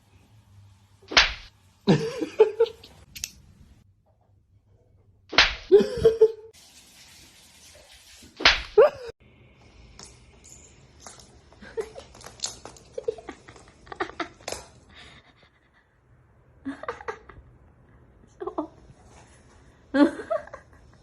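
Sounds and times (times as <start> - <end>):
sharp slaps: 1.1 - 1.5, 5.3 - 5.7, 8.4 - 8.8.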